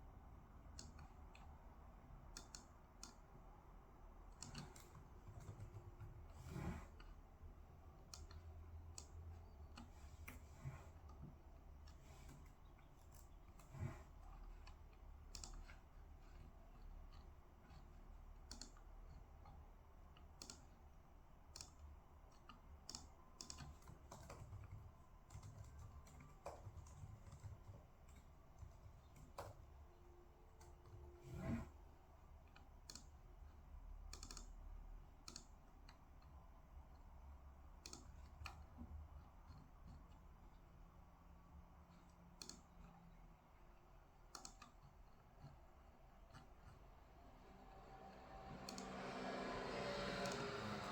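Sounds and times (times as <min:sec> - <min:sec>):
typing on computer keyboard: 0:04.3 - 0:06.4, 0:14.4 - 0:29.9, 0:34.1 - 0:34.6, 0:35.2 - 0:36.3, 0:37.8 - 0:40.6, 0:44.2 - 0:45.6.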